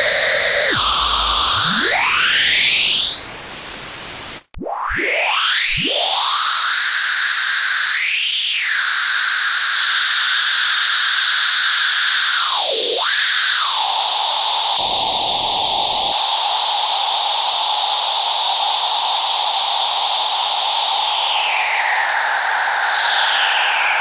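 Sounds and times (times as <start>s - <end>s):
synthesizer hiss with sweeping resonance: 13.8s - 24.0s.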